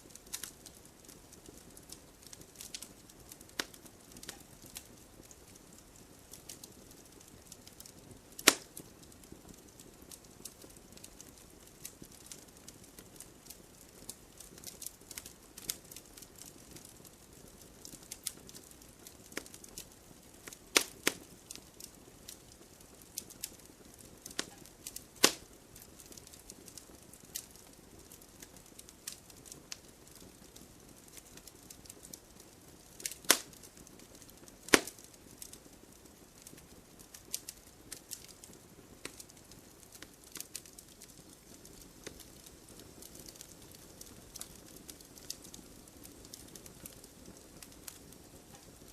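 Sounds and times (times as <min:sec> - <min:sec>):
sharp pops of fire: 0:00.0 - 0:48.9
wood fire crackling: 0:00.0 - 0:48.9
fire hiss: 0:08.3 - 0:08.8, 0:23.2 - 0:27.5, 0:34.6 - 0:35.2.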